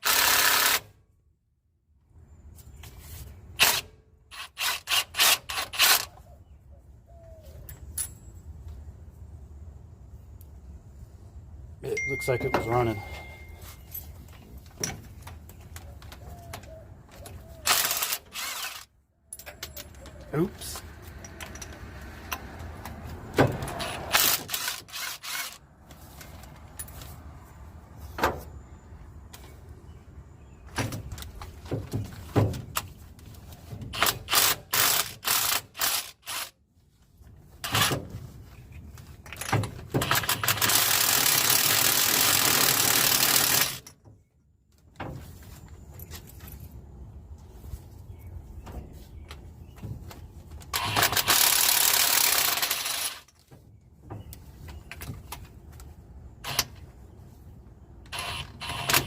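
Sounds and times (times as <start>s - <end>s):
loud steady tool noise: 17.7s - 18.9s.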